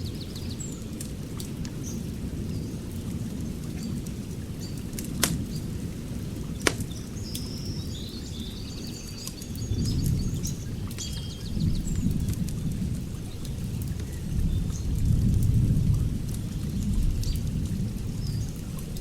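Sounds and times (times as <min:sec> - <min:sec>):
wood fire crackling: 0:00.0 - 0:07.5, 0:09.2 - 0:19.0
sharp pops: 0:06.6 - 0:07.0.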